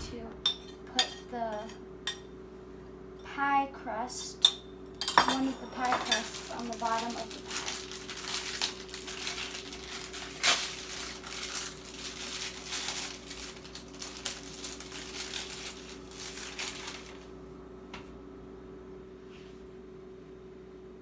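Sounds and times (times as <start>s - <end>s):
crinkling wrapper rustling: 5.7s - 17.3s.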